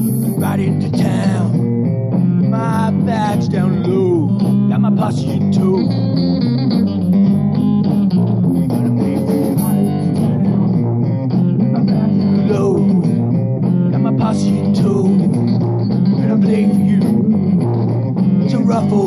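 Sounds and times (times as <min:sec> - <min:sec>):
bass guitar: 0:00.0 - 0:19.0
electric guitars: 0:00.0 - 0:19.0.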